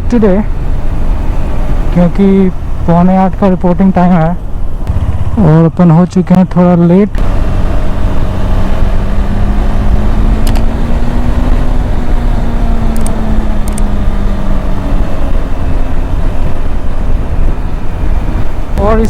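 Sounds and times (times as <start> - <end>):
motorcycle engine running: 0.0 - 19.0
wind on microphone: 7.2 - 19.0
brief clicks: 10.4 - 10.7.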